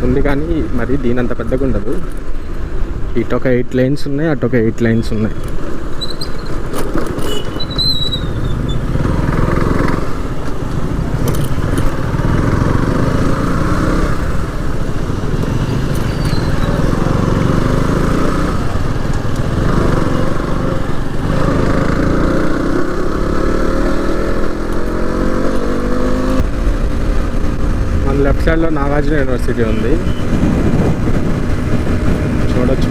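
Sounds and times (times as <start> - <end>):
road and wind noise: 0.0 - 32.9
motorcycle engine rumble: 5.0 - 32.9.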